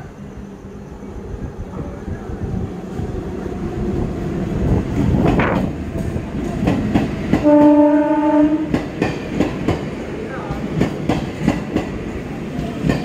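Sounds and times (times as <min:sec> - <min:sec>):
train rumble: 0:00.0 - 0:13.0
train horn blast: 0:07.3 - 0:08.8
wheels clacking over rail joints: 0:08.7 - 0:13.0.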